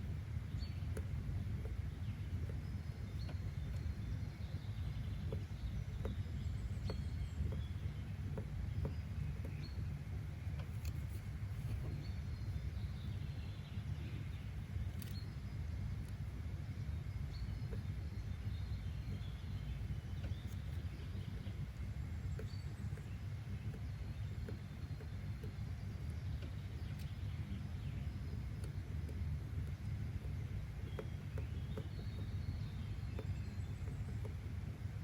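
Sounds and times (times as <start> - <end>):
steady low rumble: 0.0 - 35.0
faint clicks: 0.9 - 12.5, 14.8 - 15.4.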